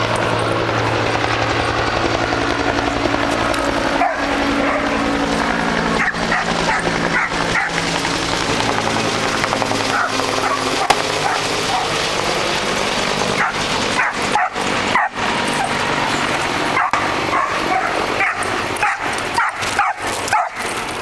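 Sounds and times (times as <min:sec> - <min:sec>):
dog yipping and whining: 0:13.4 - 0:20.8.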